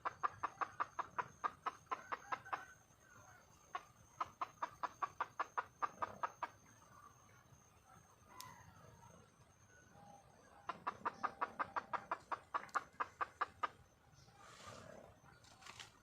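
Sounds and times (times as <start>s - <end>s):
hen clucking: 0.0s - 2.8s, 3.4s - 6.8s, 10.5s - 13.9s.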